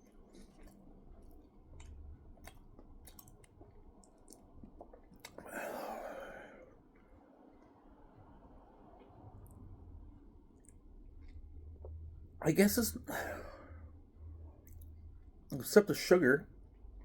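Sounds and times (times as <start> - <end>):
person chewing: 0.0 - 6.8, 14.6 - 15.0.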